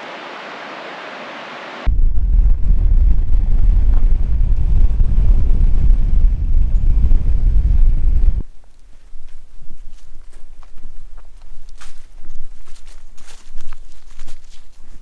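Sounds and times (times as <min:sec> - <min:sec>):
vehicle driving rumble: 0:01.8 - 0:08.5
wind noise: 0:01.8 - 0:15.0.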